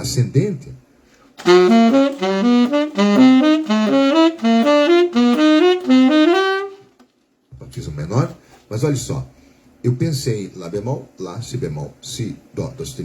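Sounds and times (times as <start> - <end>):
saxophone playing arpeggios: 1.4 - 7.0.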